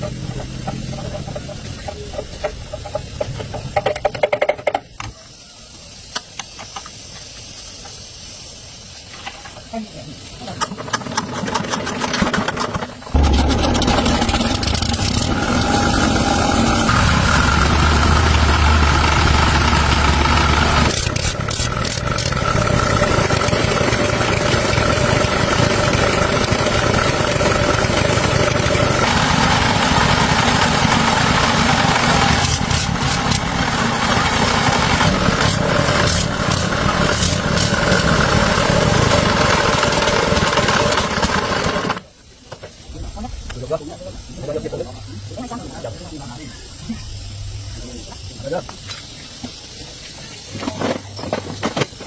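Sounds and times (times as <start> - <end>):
engine running: 0.0 - 4.2, 10.6 - 42.1.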